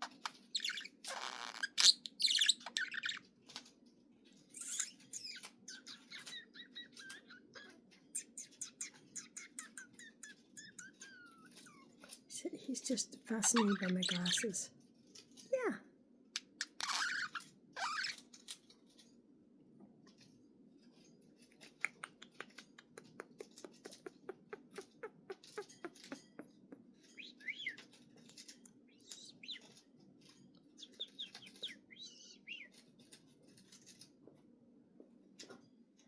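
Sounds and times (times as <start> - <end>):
budgerigar chirping: 0.6 - 3.2, 4.6 - 11.9, 13.4 - 14.5, 27.1 - 27.9, 28.9 - 29.7, 30.8 - 32.7.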